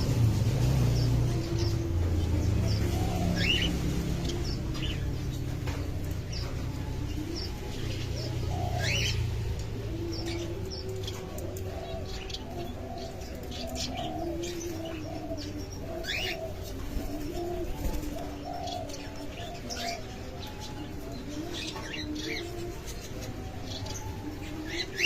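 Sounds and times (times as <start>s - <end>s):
doves cooing: 0.0s - 25.0s
small birds chirping: 0.0s - 25.0s.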